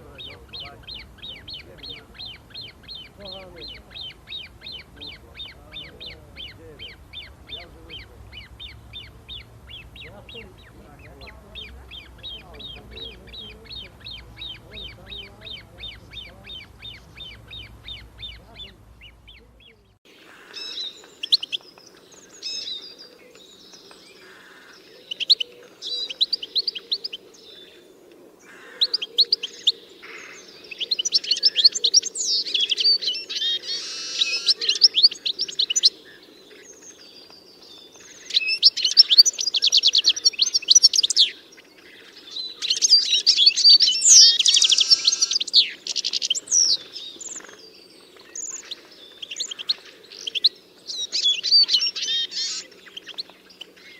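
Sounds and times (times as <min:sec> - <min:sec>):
faint low hum: 0:00.0 - 0:20.0
songbirds chirping and trilling: 0:00.0 - 0:53.9.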